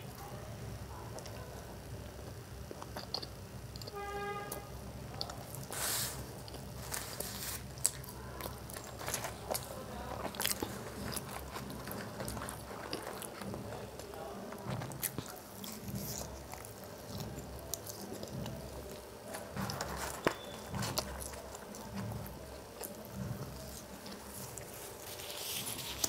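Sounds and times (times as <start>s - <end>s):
chewing fries: 0.0s - 26.0s
crackly mouth clicks: 2.0s - 4.0s
paper carton crinkling: 5.7s - 15.9s, 19.2s - 26.0s.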